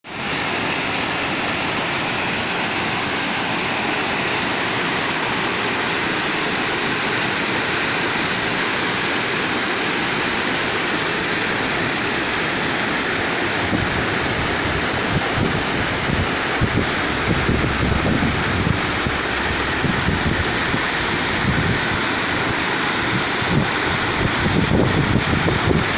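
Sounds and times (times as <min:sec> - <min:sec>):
rush of flowing water: 0:00.0 - 0:25.9
wind buffeting microphone: 0:13.2 - 0:25.9.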